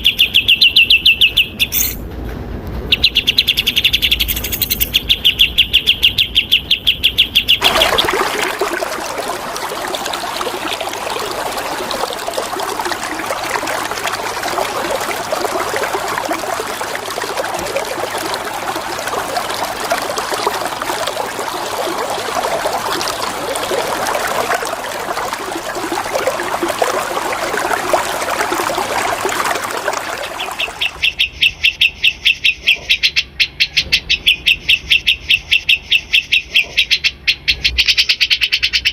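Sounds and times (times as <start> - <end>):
running water flowing: 7.6 - 31.2.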